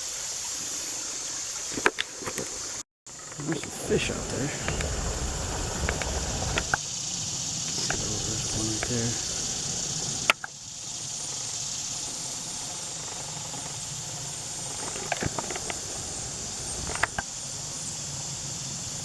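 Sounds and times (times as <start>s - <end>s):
high-pitched outdoor hiss: 0.0s - 19.0s
sharp clicks: 10.2s - 10.5s, 16.7s - 17.3s.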